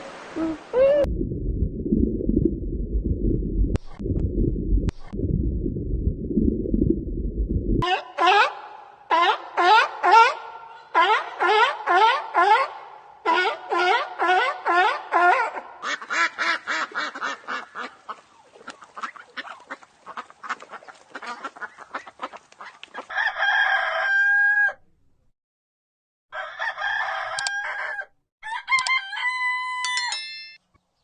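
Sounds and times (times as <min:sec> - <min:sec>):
chickens clucking: 0:13.3 - 0:23.1
rooster crowing: 0:23.1 - 0:24.8, 0:26.3 - 0:30.2.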